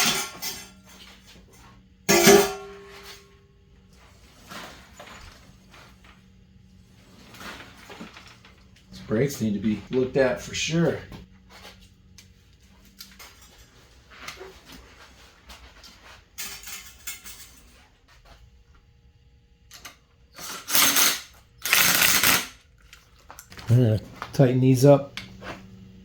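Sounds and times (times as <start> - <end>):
tools clicking and scraping: 12.2 - 14.8, 19.7 - 23.6.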